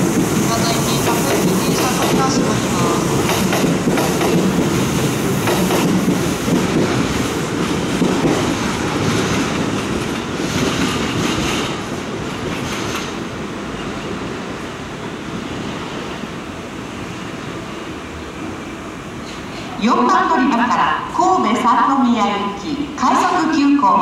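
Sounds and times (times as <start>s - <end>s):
electric train running on rails: 0.0s - 24.0s.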